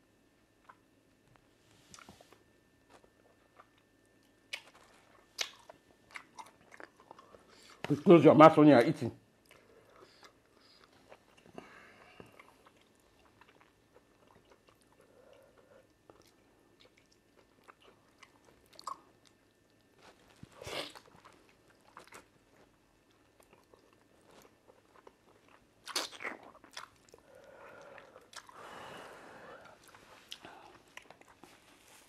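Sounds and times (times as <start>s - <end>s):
open-mouthed chewing: 2.9s - 7.9s, 9.4s - 28.7s, 29.6s - 32.0s
lip smacks: 5.4s - 6.9s, 25.8s - 27.2s.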